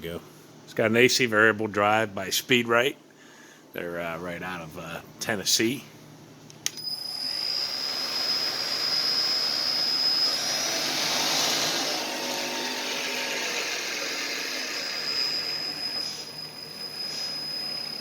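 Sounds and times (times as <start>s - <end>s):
milling machine whirring: 6.7s - 18.0s
thin high whine: 6.7s - 18.0s.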